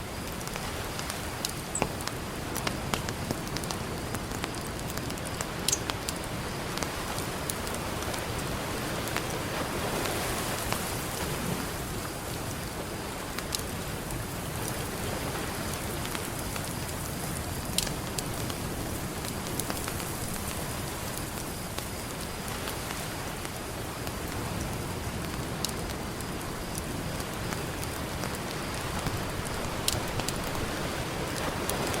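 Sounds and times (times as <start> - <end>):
ocean surf: 0.0 - 32.0
campfire crackling and popping: 0.1 - 9.4, 16.0 - 32.0.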